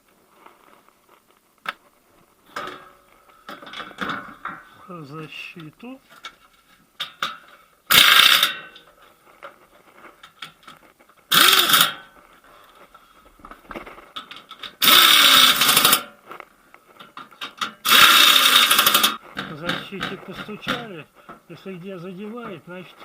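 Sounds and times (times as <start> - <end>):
power screwdriver whirring: 11.3 - 11.9, 14.8 - 16.0, 17.8 - 19.1.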